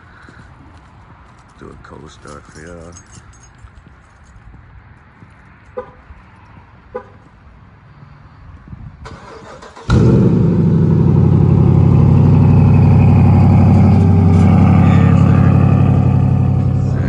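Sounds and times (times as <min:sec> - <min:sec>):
car starter cranking: 0:09.1 - 0:10.4
car engine running: 0:09.9 - 0:17.0.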